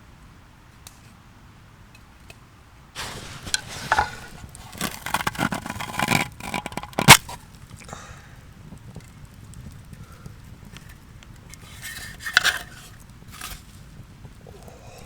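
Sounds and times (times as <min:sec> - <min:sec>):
rustling and scraping of gear: 0:03.0 - 0:07.8, 0:10.6 - 0:14.7.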